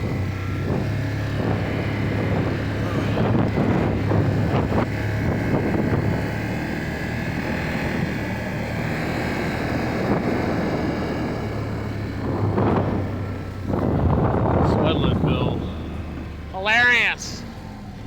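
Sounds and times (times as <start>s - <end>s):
wind buffeting microphone: 0.0s - 16.5s
atv engine running: 0.0s - 18.0s.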